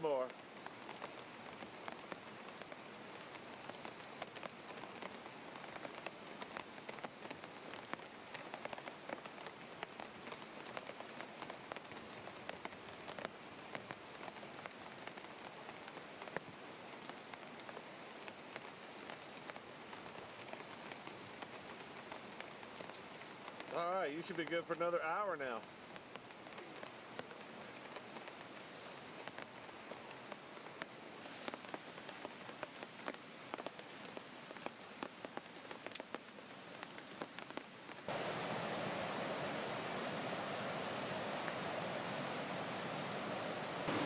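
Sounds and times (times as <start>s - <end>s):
rain pattering: 0.0s - 44.0s.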